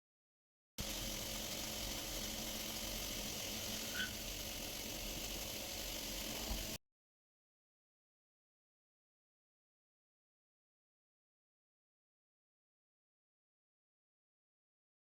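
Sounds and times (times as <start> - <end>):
machine humming: 0.8 - 6.8.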